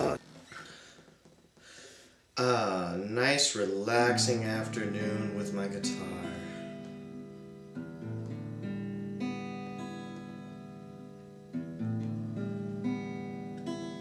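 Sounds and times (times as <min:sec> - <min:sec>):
acoustic guitar played slowly: 0:00.0 - 0:00.3, 0:03.5 - 0:14.0.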